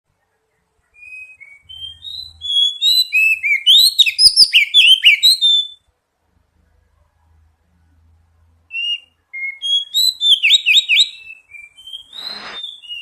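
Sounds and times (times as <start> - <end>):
bird song whistled notes: 0.8 - 5.9, 8.7 - 13.0.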